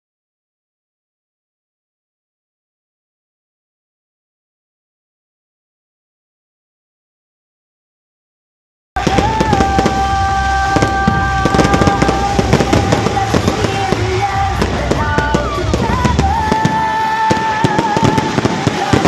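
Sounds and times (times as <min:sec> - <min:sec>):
fireworks banging and crackling: 0:09.0 - 0:19.0
loud music with held notes: 0:09.0 - 0:19.0.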